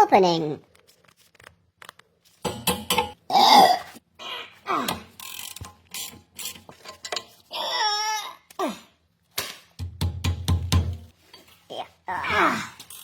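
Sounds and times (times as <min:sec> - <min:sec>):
ratcheting wrench clicking: 0:05.1 - 0:07.3
tool knocking on metal: 0:09.8 - 0:11.1.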